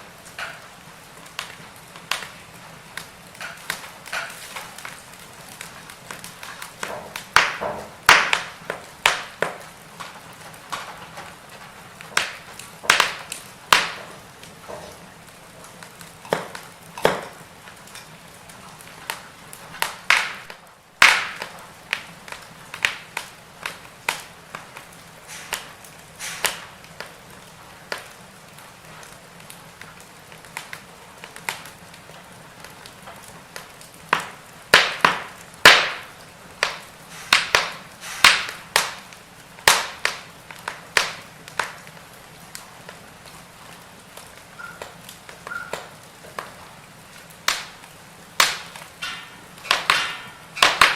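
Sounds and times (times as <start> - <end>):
faint fire hiss: 0.0 - 50.9
firewood crackling and popping: 0.0 - 50.9.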